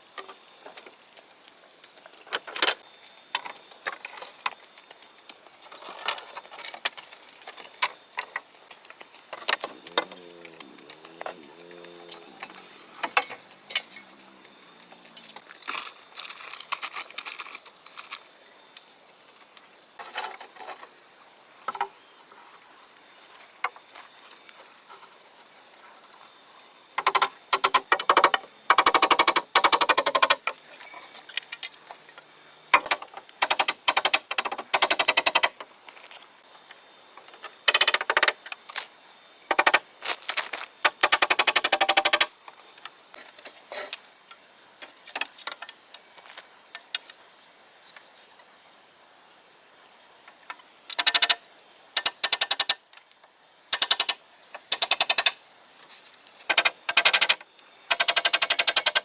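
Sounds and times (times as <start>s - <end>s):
fast mechanical rattling: 27.0s - 30.4s, 40.9s - 42.3s, 56.5s - 59.0s.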